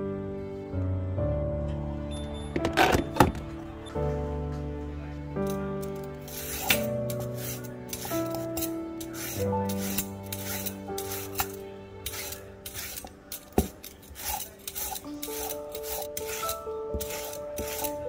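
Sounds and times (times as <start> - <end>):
soft background music: 0.0 - 18.0
rasping vegetable scraping: 6.2 - 18.0.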